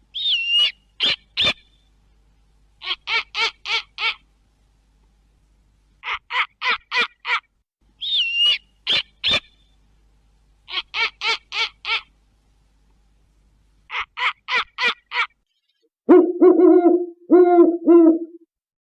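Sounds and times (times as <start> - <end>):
owl pulsing hoots: 0.1 - 1.8, 8.0 - 9.6, 16.1 - 18.5
owl high-pitched notes: 0.2 - 1.7, 8.0 - 9.5, 16.1 - 18.4.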